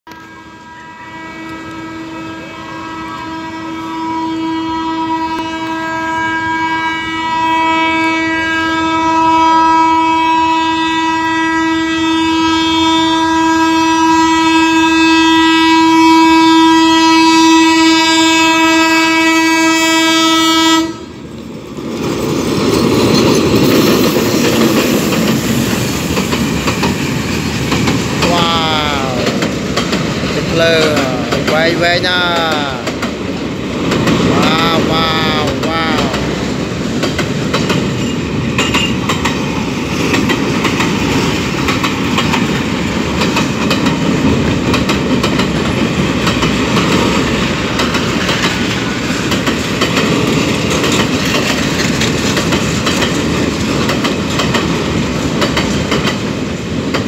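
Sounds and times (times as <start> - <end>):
train horn blast: 0.1 - 21.2
train cars rumbling and clattering: 11.5 - 57.0.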